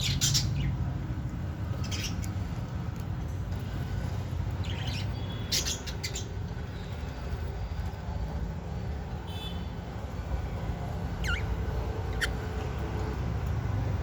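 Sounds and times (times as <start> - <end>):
budgie chirping: 11.1 - 12.6.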